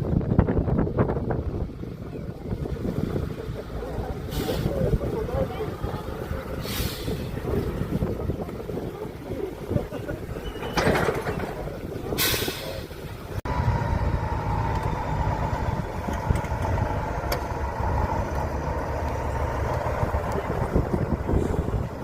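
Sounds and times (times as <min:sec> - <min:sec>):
truck engine running: 0:00.0 - 0:22.0
compressed air hiss: 0:06.6 - 0:07.4
engine whine: 0:12.8 - 0:22.0.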